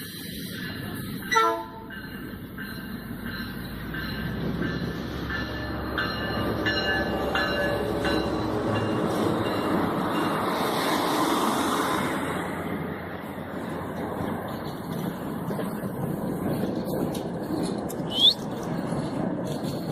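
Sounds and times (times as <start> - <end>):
train rumble: 0.0 - 19.9
train horn blast: 1.3 - 1.8.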